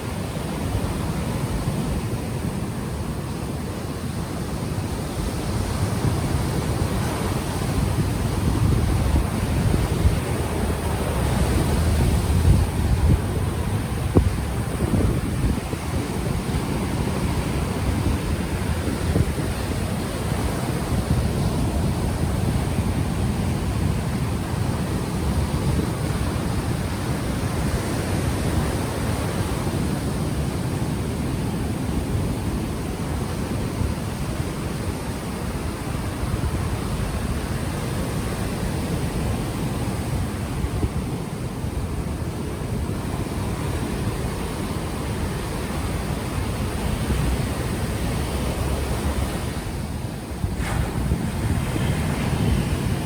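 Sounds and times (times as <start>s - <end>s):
ocean waves washing onto shore: 0.0s - 53.0s
wind buffeting microphone: 0.0s - 53.0s.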